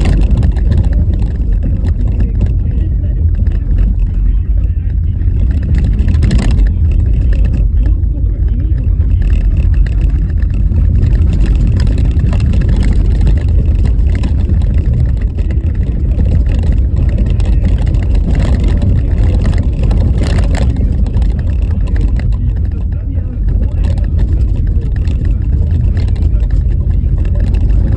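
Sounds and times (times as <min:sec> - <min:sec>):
knocks from bumpy road: 0:00.0 - 0:27.9
tyres rumbling on snowy road: 0:00.0 - 0:27.9.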